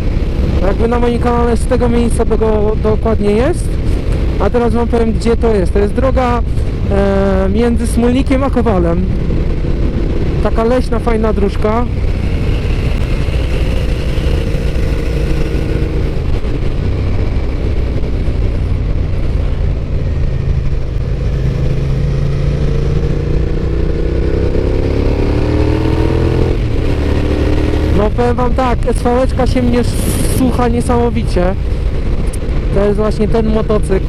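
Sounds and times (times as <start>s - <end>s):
wind rumble: 0.0s - 34.0s
motorcycle engine: 8.3s - 34.0s.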